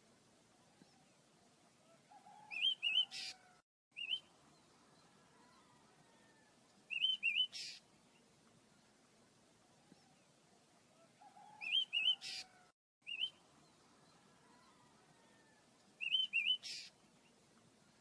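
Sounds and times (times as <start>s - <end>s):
small birds chirping: 2.3s - 9.0s, 11.3s - 18.0s.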